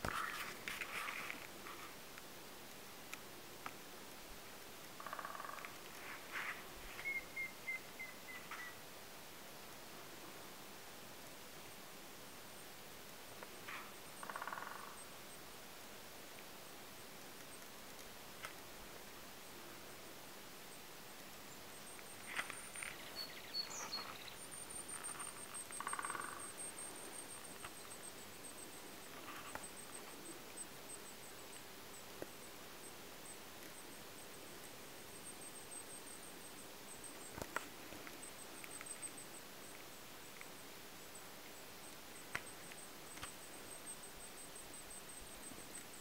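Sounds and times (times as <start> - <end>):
faint steady hiss: 0.0 - 46.0
small birds chirping: 5.0 - 8.8, 20.7 - 46.0
rapid rattling bird call: 25.0 - 26.6.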